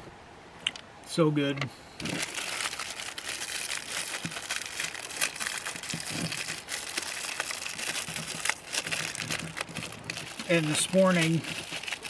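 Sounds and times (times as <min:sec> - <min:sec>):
foil wrapper crinkling: 0:02.0 - 0:12.0.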